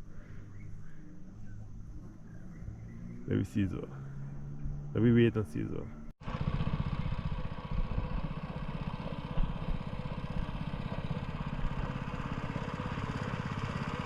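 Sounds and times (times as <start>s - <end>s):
air compressor motor running: 6.2s - 14.0s.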